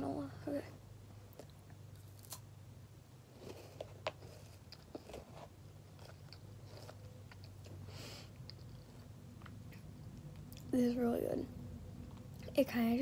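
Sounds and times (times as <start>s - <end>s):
low steady hum: 0.0s - 13.0s
person chewing crunchy food: 3.3s - 10.7s.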